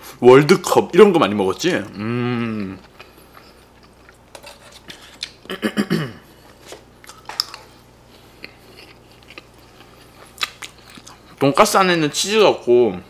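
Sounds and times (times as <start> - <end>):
person biting and chewing food: 2.4 - 5.5, 6.4 - 11.4.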